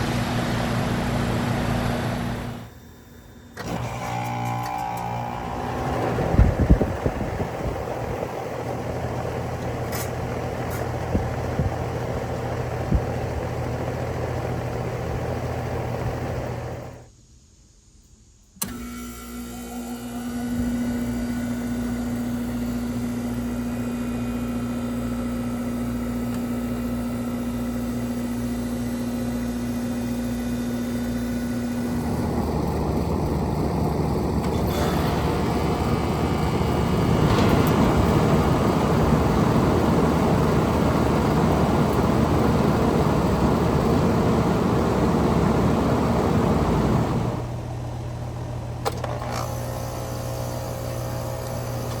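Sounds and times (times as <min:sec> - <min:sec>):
fan air rush: 0:00.0 - 0:02.7, 0:05.2 - 0:17.1, 0:31.3 - 0:47.6
electrical hum: 0:00.0 - 0:17.1, 0:18.6 - 0:52.0.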